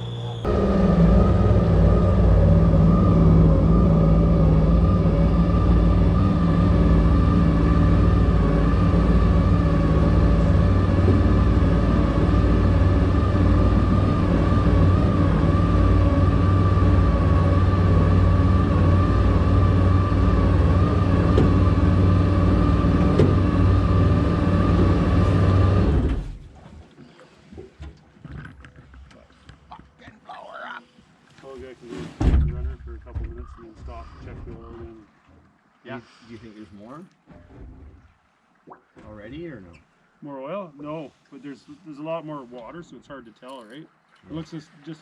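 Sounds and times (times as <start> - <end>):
jet boat engine: 0.0 - 26.6
water lapping: 0.4 - 42.6, 43.6 - 45.0.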